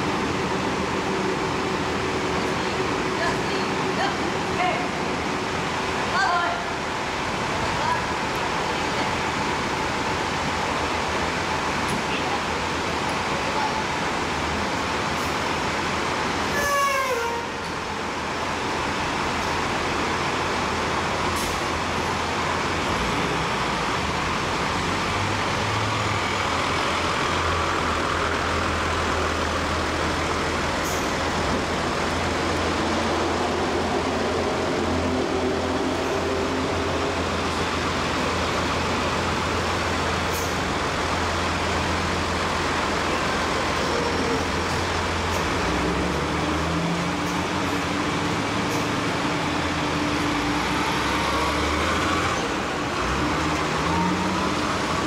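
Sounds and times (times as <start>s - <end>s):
rushing road noise: 0.0s - 55.0s
engine hum: 17.6s - 55.0s.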